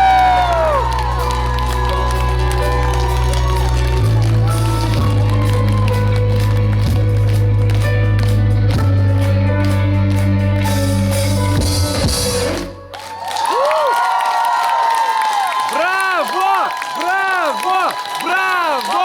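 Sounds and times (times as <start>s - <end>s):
crowd cheering: 0.0s - 7.2s, 12.5s - 19.0s
live band playing: 0.0s - 13.2s.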